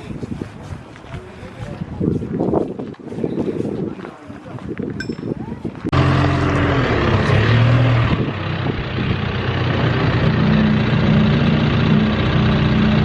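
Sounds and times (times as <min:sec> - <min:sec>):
car engine running: 0:05.9 - 0:13.0.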